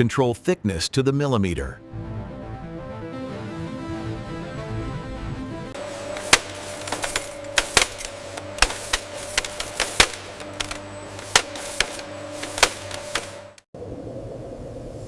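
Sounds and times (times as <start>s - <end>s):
machinery clacking: 5.8s - 13.6s.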